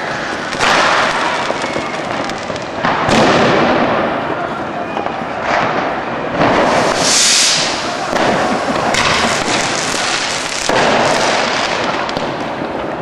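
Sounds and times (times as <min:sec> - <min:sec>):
fireworks crackling and banging: 0:00.0 - 0:13.0
bright firework hiss: 0:06.4 - 0:12.1.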